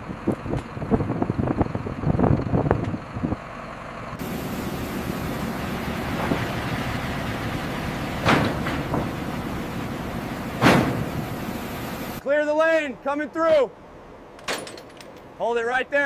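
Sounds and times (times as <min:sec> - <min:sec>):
heavy vehicle engine running: 0:00.0 - 0:12.2
short knocks: 0:08.2 - 0:09.2, 0:10.5 - 0:11.4.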